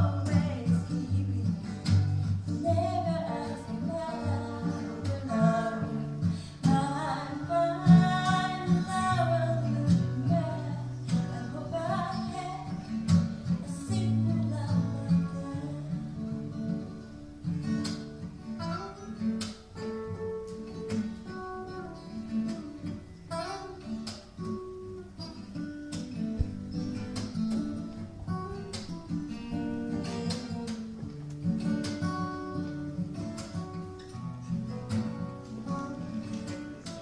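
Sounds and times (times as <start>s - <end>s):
strummed acoustic guitar: 0.0s - 37.0s.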